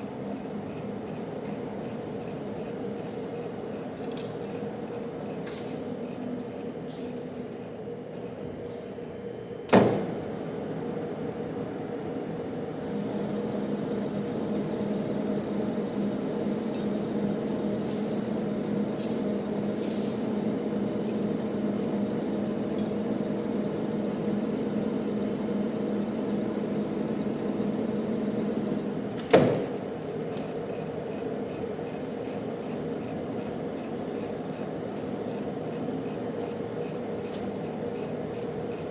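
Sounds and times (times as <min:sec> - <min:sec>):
metal lathe humming: 0:12.8 - 0:29.1.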